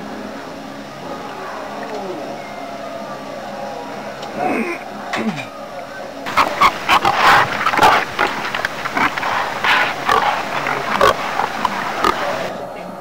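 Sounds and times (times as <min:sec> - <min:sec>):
man chewing noisily: 0:06.3 - 0:12.5.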